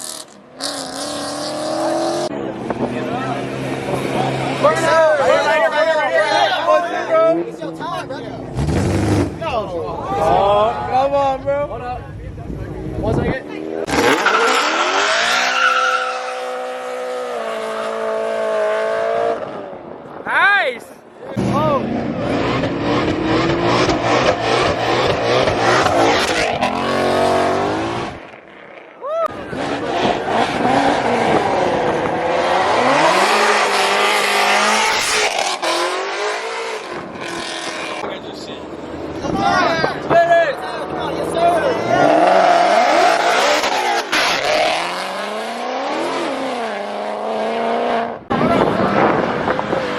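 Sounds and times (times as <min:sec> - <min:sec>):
car engine at high revs: 0:00.0 - 0:04.8, 0:13.0 - 0:19.9, 0:21.4 - 0:28.4, 0:29.4 - 0:39.3, 0:40.8 - 0:49.9
tires squealing: 0:13.8 - 0:18.6, 0:29.0 - 0:47.1
tyres squealing: 0:13.9 - 0:16.7.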